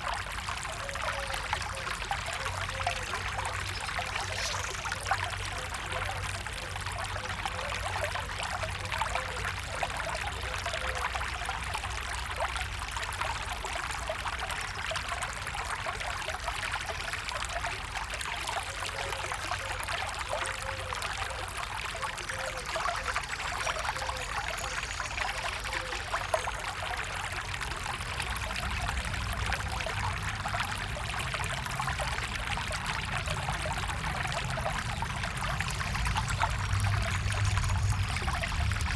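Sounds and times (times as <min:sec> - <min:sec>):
stream trickling: 0:00.0 - 0:38.9.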